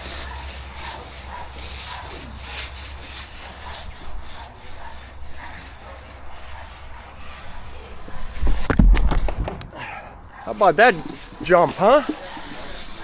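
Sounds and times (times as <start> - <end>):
hand tool rasping on wet concrete: 0.0 - 8.7, 10.4 - 13.0.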